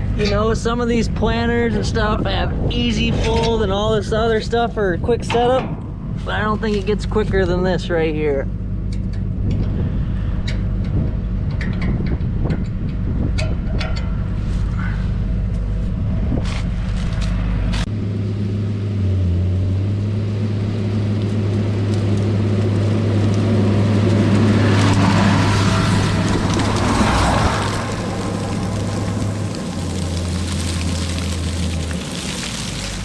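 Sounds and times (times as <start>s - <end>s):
tractor diesel engine running: 3.8s - 33.0s
clicks and knocks: 5.3s - 6.1s
rushing sound: 23.6s - 33.0s.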